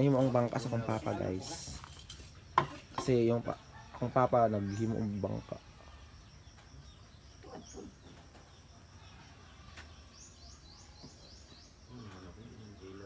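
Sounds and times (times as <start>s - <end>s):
small bird chirping: 4.6s - 13.0s.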